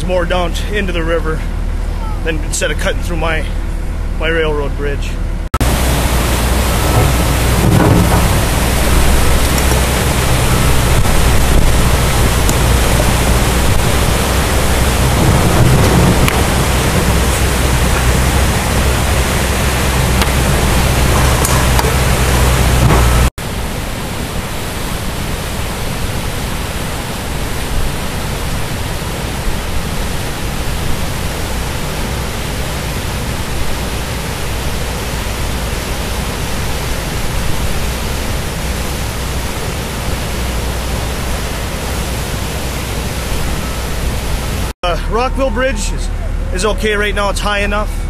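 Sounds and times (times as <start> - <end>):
flooded river rushing: 5.6 - 47.9.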